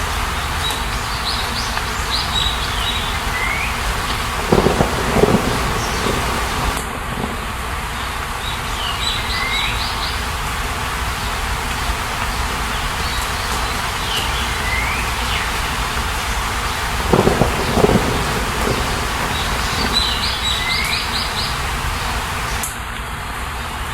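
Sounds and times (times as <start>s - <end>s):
steady rushing noise: 3.1s - 9.4s, 10.2s - 22.7s.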